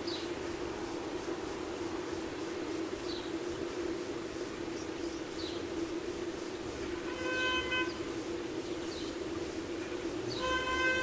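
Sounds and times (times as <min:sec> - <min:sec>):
horn long steady note: 0:06.9 - 0:08.0, 0:10.3 - 0:11.0.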